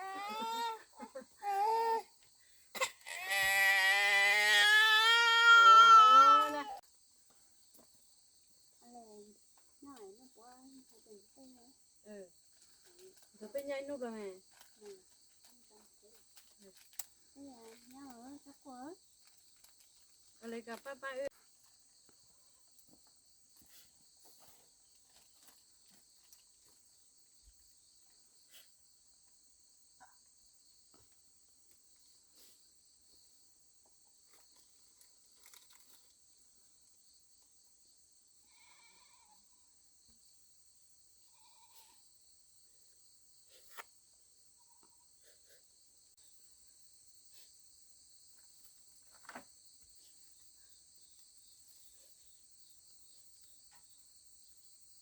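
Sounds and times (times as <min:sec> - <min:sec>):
crickets chirring: 0:00.0 - 0:55.0
brief higher insect calls: 0:42.9 - 0:47.7.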